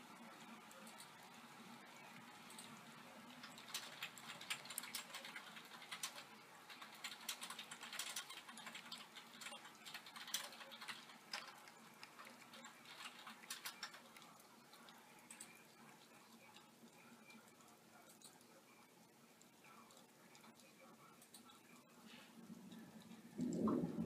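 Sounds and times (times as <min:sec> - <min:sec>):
faint low hum: 0:00.0 - 0:24.0
raindrops tapping on window screen: 0:03.4 - 0:11.6.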